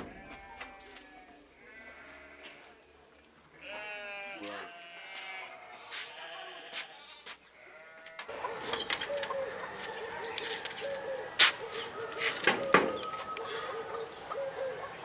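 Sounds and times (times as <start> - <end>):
bird cooing: 8.3 - 15.0.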